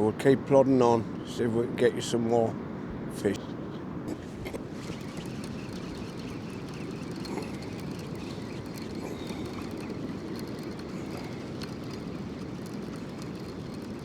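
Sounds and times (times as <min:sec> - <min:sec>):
wind: 0:00.0 - 0:14.0
sea rumble: 0:04.1 - 0:14.0.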